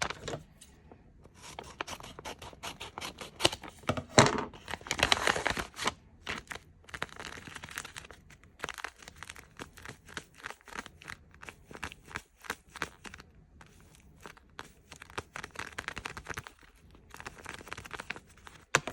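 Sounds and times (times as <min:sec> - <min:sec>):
plastic packaging crinkling: 0:00.0 - 0:00.6, 0:02.9 - 0:12.1, 0:14.3 - 0:18.9.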